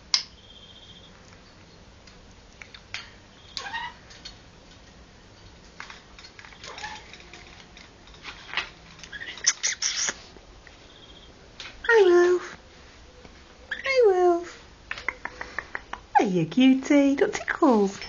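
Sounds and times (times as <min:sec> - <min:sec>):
parrot squeaky chirps: 0:03.4 - 0:04.0, 0:09.1 - 0:10.2, 0:13.7 - 0:14.0
parrot beak clicks: 0:09.1 - 0:10.2, 0:14.9 - 0:16.1.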